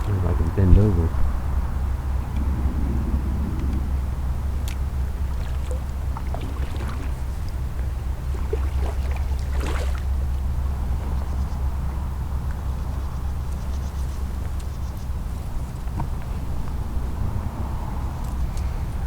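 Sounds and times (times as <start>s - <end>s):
steady low rumble: 0.0s - 19.0s
kayak knocking and scraping: 4.6s - 10.3s.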